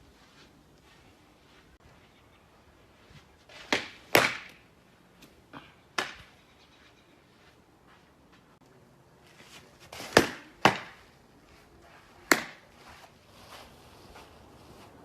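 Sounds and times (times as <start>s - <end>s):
ball smacking into catcher's mitt: 3.7s - 4.6s, 10.0s - 11.0s, 12.2s - 12.6s.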